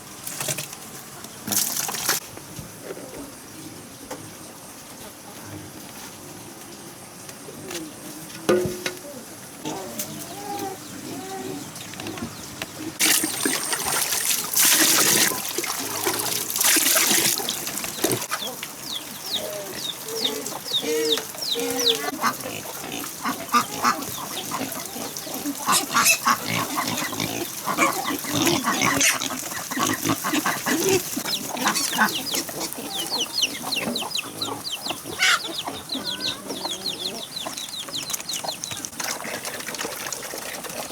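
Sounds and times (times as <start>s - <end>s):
young birds peeping: 2.4s - 39.7s
ducks quacking: 19.7s - 37.7s.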